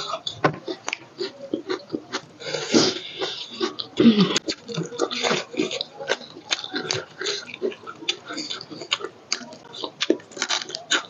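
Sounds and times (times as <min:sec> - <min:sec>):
chewing mouth clicks and smacks: 0:03.6 - 0:11.0.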